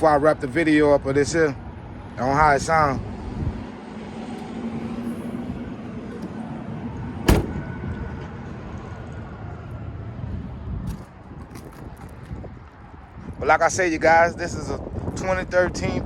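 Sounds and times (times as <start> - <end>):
steady low rumble: 1.7 - 13.8
car door shutting: 7.2 - 7.8.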